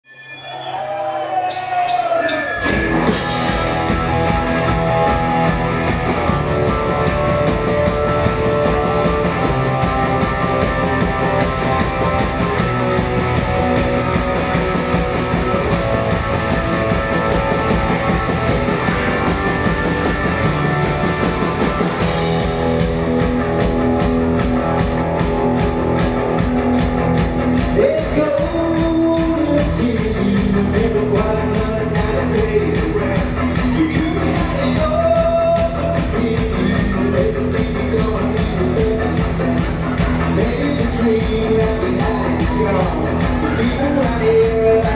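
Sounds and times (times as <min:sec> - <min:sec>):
rock band playing live: 0:00.1 - 0:44.9
person singing: 0:27.6 - 0:44.9.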